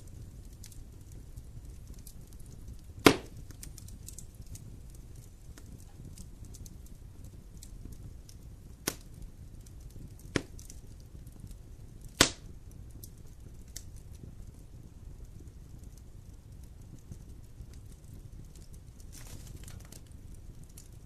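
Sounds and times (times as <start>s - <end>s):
faint fire crackles: 0.0s - 21.0s
low rumble of campfire flames: 0.0s - 21.0s
sharp fire pops: 0.0s - 21.0s.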